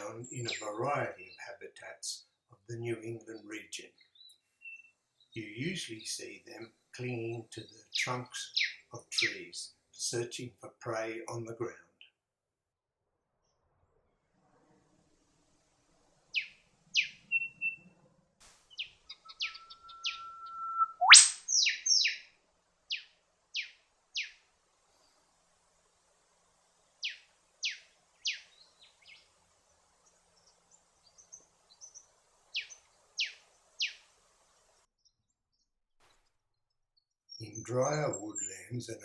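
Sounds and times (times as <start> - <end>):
birds calling with sharp notes: 0.0 - 9.7, 16.3 - 18.0, 18.6 - 22.3, 22.9 - 24.4, 27.0 - 34.2
whistle snapping into whip-like sweep: 20.6 - 21.5.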